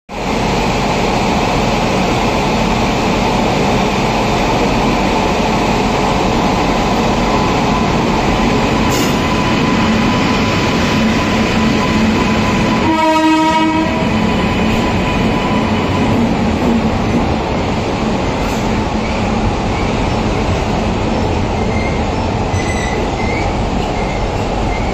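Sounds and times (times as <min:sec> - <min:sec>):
train rumbling past: 0:00.1 - 0:24.9
train horn: 0:12.7 - 0:14.2.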